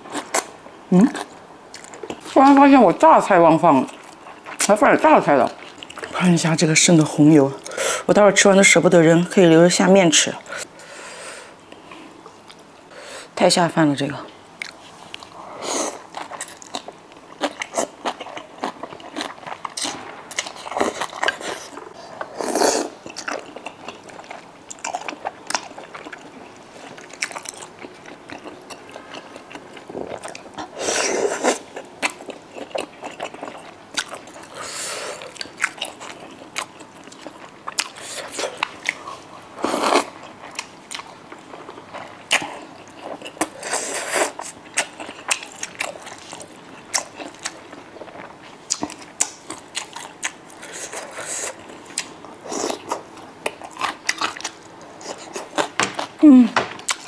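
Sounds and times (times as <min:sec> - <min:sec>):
chewing and mouth smacks: 0:23.0 - 0:30.7, 0:31.7 - 0:34.6, 0:35.2 - 0:39.3, 0:40.0 - 0:56.1.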